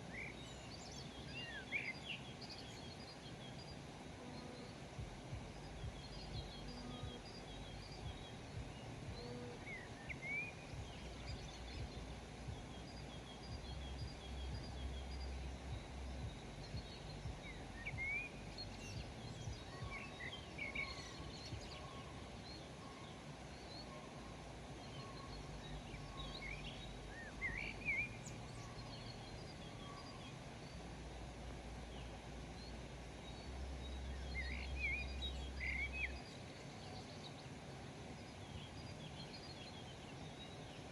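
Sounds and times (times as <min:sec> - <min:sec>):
low background rumble: 0:00.0 - 0:40.9
birds chirping and calling: 0:05.4 - 0:31.0.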